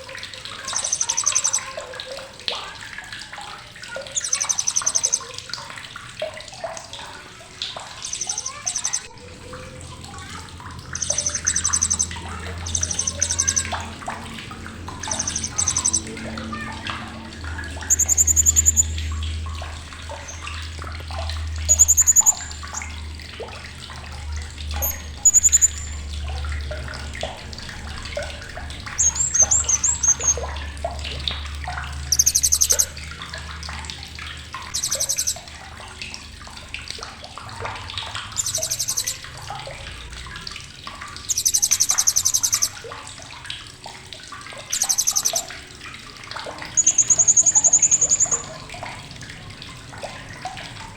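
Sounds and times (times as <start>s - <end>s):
running water: 0.0s - 50.9s
parrot buzzy chattering calls: 0.5s - 1.8s, 4.0s - 5.4s, 7.8s - 9.2s, 10.2s - 22.9s, 24.7s - 26.2s, 28.9s - 30.6s, 32.0s - 33.2s, 34.6s - 35.5s, 38.3s - 39.3s, 41.3s - 42.8s, 44.7s - 45.5s, 46.7s - 48.5s.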